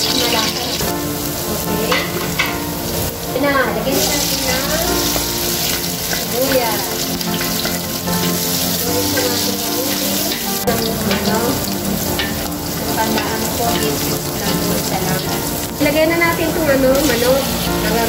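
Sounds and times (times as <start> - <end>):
food sizzling in hot oil: 0.0 - 18.0
food being stirred in pan: 3.9 - 18.0.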